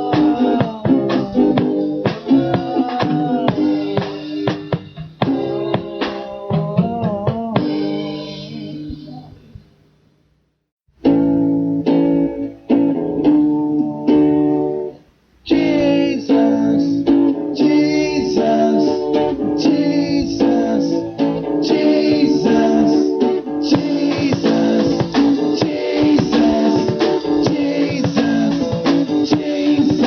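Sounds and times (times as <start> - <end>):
strummed guitar chords: 0.0 - 9.6, 11.0 - 30.0.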